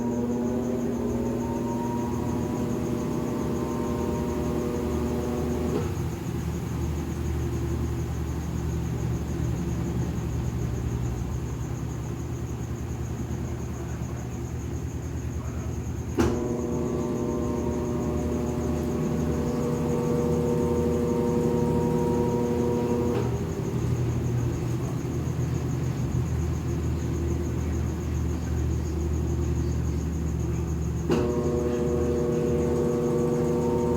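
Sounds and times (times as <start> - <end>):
washing machine click: 0.0 - 6.3, 16.1 - 26.2, 31.0 - 33.9
steady motor tone: 0.0 - 10.4, 16.2 - 33.9
washing machine drum humming: 0.0 - 33.9.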